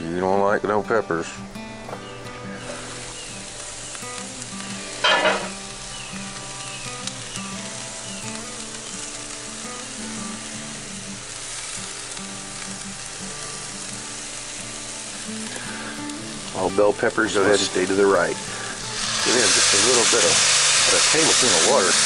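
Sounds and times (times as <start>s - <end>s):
food sizzling in a skillet: 1.6s - 22.0s.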